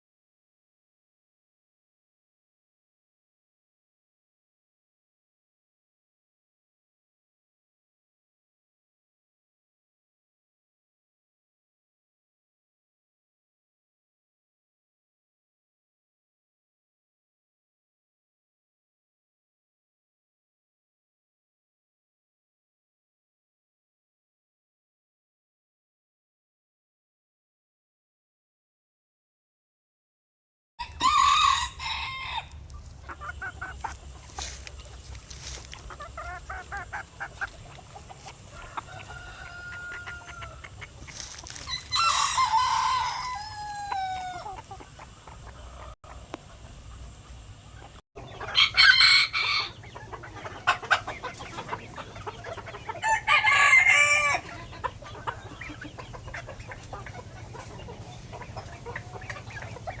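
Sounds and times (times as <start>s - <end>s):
roosters crowing: 30.8s - 37.0s, 38.4s - 44.7s, 48.2s - 50.8s, 52.6s - 55.3s
chickens clucking: 30.8s - 60.0s.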